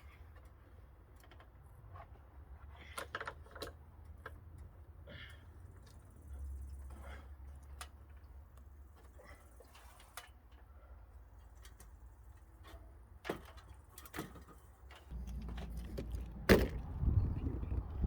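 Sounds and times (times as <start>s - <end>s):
low rumble: 15.1s - 18.0s
loud wooden thump: 16.4s - 17.1s.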